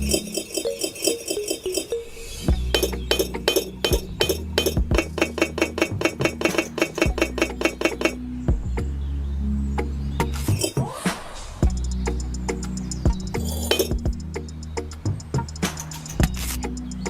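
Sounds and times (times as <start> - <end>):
rapid light clinks: 15.2 - 16.9.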